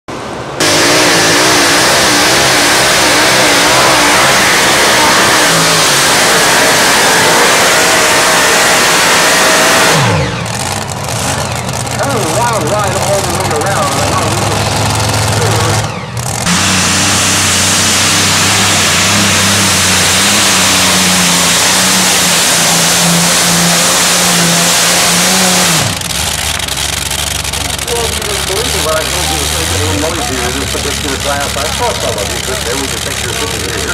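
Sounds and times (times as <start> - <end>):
tractor engine running hard: 0.1 - 33.9.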